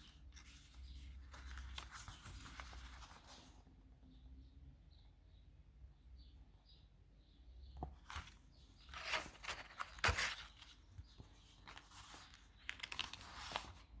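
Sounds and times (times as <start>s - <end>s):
paper rustling and crinkling: 0.0s - 3.6s, 8.0s - 14.0s.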